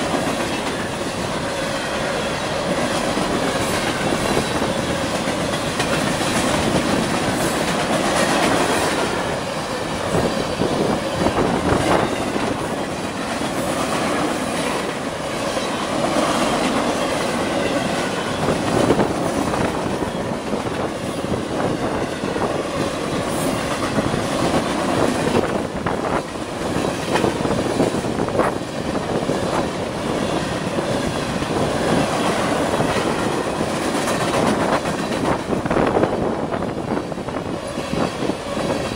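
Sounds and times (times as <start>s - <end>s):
wheels clicking over rail joints: 0.0s - 21.0s
train wheels rumbling on rails: 0.0s - 38.9s.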